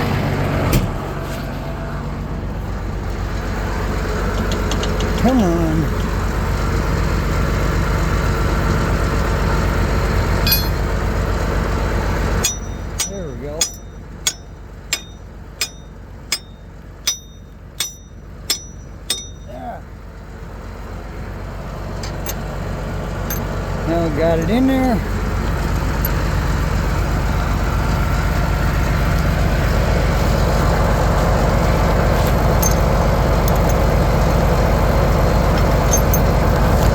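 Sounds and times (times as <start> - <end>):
vehicle engine idling: 0.0 - 36.9
metallic clink: 10.4 - 11.0, 12.4 - 19.7, 23.3 - 23.5, 32.6 - 33.9, 35.6 - 36.4.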